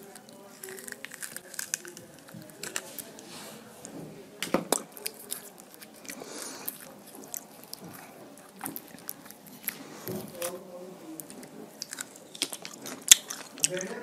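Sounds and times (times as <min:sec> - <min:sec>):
wet chewing and lip-smacking: 0:04.8 - 0:10.6, 0:11.2 - 0:14.0.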